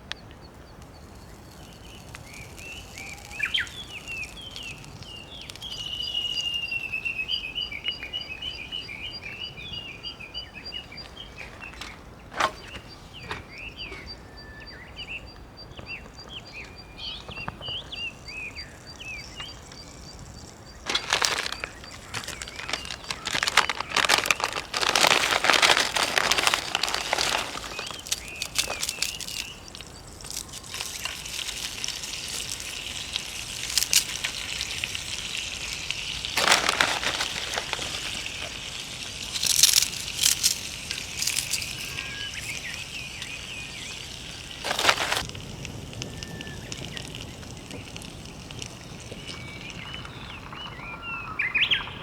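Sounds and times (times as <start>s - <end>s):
small birds chirping: 0.0s - 52.0s
crinkling rustling handling noise: 20.2s - 45.4s.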